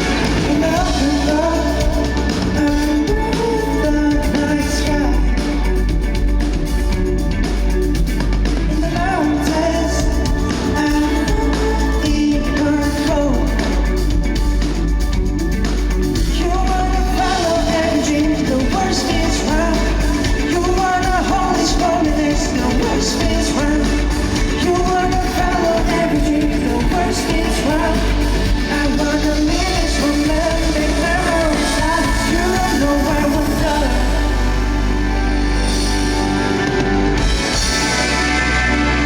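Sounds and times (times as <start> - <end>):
rock band playing live: 0.0 - 39.0
lead singer wavering melody: 16.3 - 35.6.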